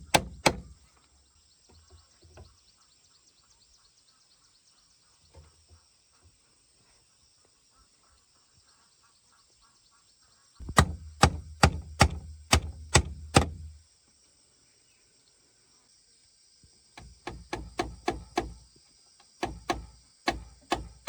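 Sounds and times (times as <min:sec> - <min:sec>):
sharp blows on wood: 0:00.0 - 0:00.7, 0:10.6 - 0:13.8, 0:17.0 - 0:18.6, 0:19.4 - 0:21.0
insects chirping: 0:00.0 - 0:21.0.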